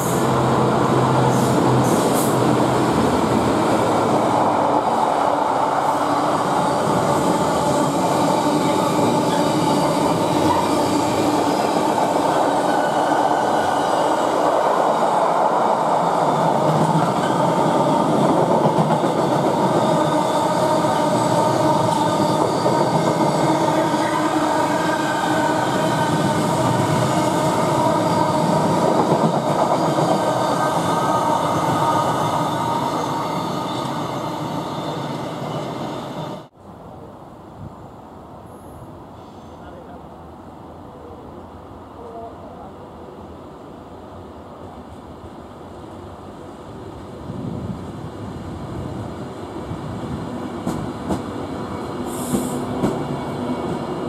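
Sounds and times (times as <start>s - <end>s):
freight train rumbling and clattering: 14.5s - 24.7s, 46.9s - 54.0s.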